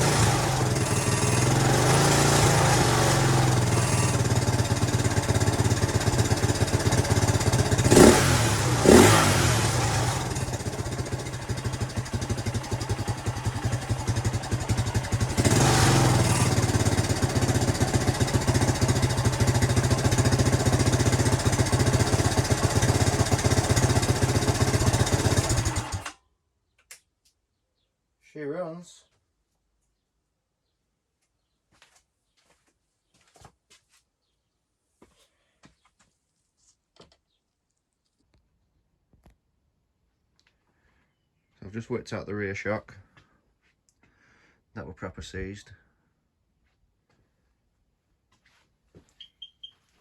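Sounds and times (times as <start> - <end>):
motorcycle engine revving: 0.0 - 26.1.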